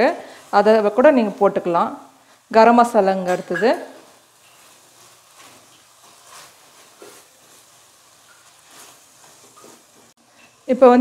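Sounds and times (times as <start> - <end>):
faint sizzling in a pot: 0.0 - 11.0
wooden spatula scraping: 3.3 - 10.7.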